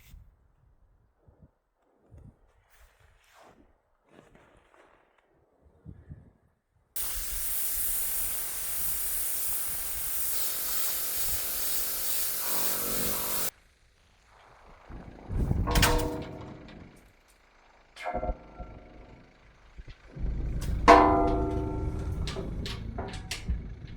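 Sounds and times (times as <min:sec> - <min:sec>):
loud burst with ringing tone: 0:07.0 - 0:13.5
loud pressurized hiss: 0:07.0 - 0:13.5.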